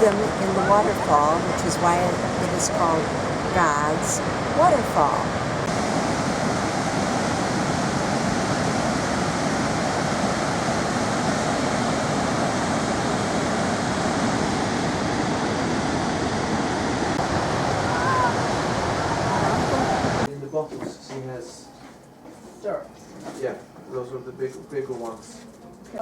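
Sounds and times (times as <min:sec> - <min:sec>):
waterfall rushing: 0:00.0 - 0:20.3.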